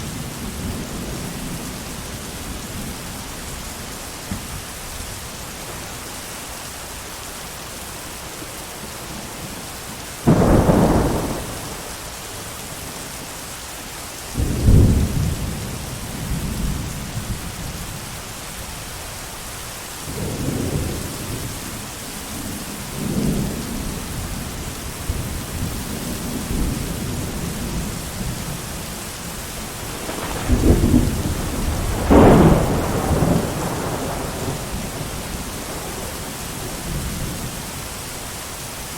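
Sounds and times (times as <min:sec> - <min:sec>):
heavy rain: 0:00.0 - 0:38.9
thunder: 0:10.2 - 0:12.0, 0:14.4 - 0:17.5, 0:29.8 - 0:37.4.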